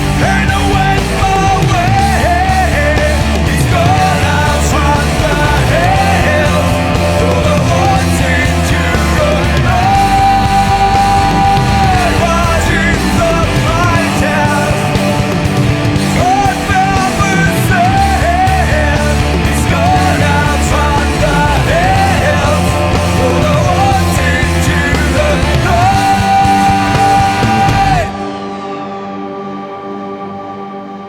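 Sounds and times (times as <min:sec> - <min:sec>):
grunge rock band playing: 0:00.0 - 0:31.0.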